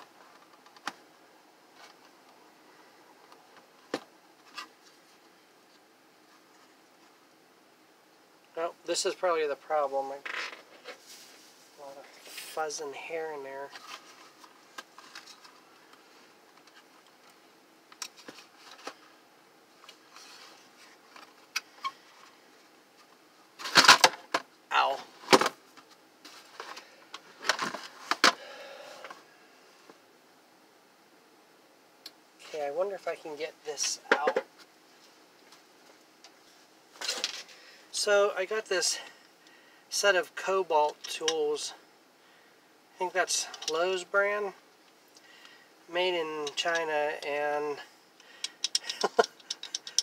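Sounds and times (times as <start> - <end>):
plastic parts clicking and knocking: 48.4 - 50.0.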